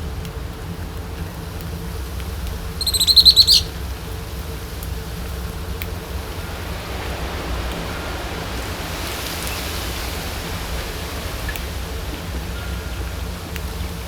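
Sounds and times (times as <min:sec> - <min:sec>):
rushing outdoor background noise: 0:00.0 - 0:14.0
faint short chirp: 0:02.8 - 0:03.7.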